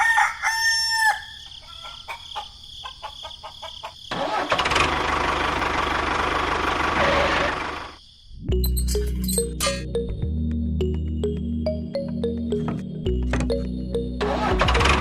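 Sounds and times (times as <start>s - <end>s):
rooster crowing: 0.0s - 4.1s
small engine running: 4.2s - 8.0s.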